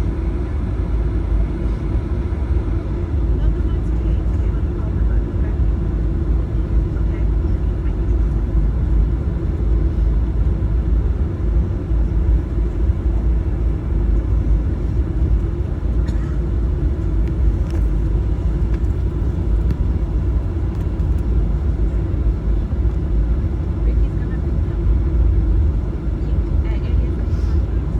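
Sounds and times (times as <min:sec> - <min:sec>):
jet engines idling: 0:00.1 - 0:27.9
wheels rolling rumble: 0:12.0 - 0:24.3.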